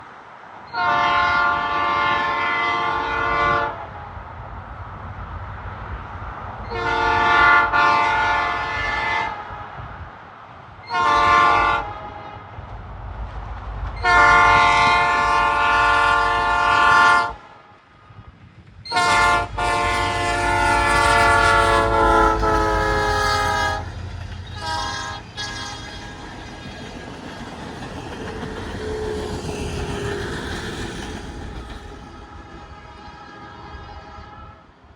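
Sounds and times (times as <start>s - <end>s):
train rumbling on track: 0.0s - 34.9s
locomotive air horn blasts: 0.8s - 3.8s, 6.7s - 9.6s, 10.9s - 12.4s, 14.0s - 17.4s, 18.9s - 24.0s, 24.6s - 26.2s, 32.3s - 34.7s.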